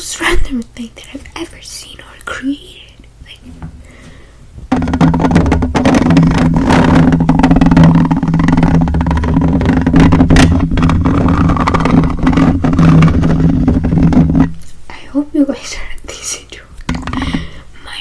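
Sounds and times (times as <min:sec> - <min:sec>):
scratchy noise: 0:04.7 - 0:14.6.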